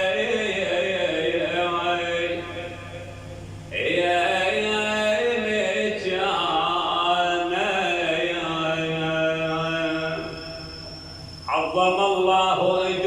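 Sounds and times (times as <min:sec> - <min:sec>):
man chanting a lament: 0:00.0 - 0:03.1, 0:03.7 - 0:10.4, 0:11.5 - 0:13.0
low hum: 0:00.0 - 0:13.0.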